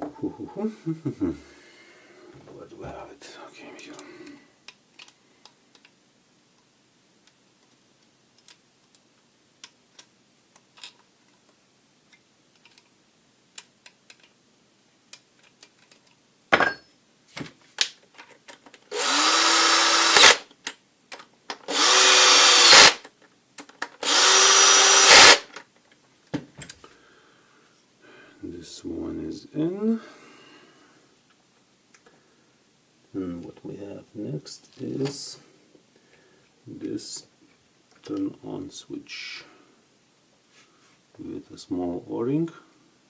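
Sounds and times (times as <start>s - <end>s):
cordless drill driving screws: 18.9s - 20.4s, 21.7s - 23.0s, 24.0s - 25.5s.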